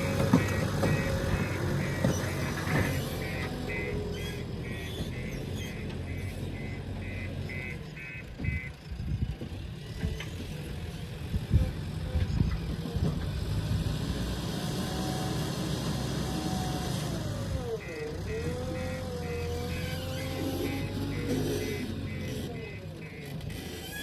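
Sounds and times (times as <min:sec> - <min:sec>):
electronic warning beeps: 0:00.0 - 0:08.8, 0:17.8 - 0:23.6
heavy diesel engine running: 0:00.0 - 0:24.0.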